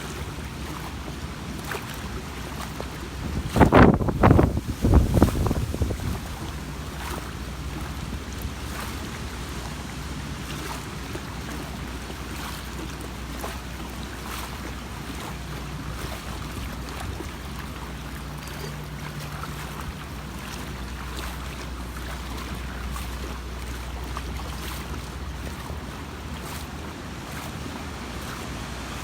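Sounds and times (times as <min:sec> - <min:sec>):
boat motor running: 0:00.0 - 0:29.0
wind noise on microphone: 0:03.0 - 0:09.6.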